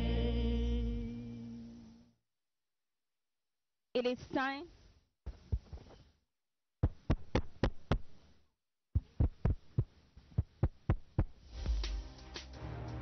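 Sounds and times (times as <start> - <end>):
rapid low thumps: 5.3 - 5.9, 6.8 - 8.2, 9.0 - 12.1.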